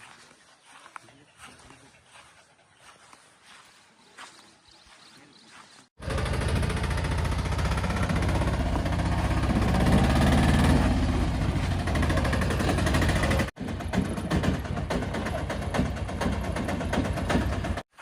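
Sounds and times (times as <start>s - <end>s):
heavy diesel engine chugging: 6.0s - 17.8s.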